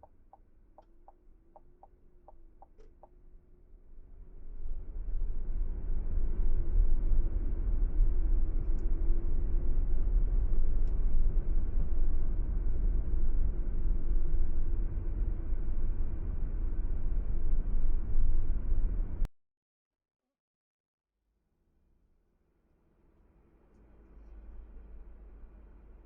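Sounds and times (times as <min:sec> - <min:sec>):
car road and engine rumble: 0:00.0 - 0:19.3.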